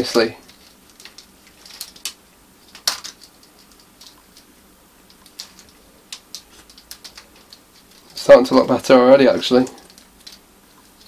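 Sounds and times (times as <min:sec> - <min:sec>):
wires rustling: 0:00.0 - 0:11.0
small plastic clicks: 0:05.1 - 0:08.1, 0:09.7 - 0:11.0.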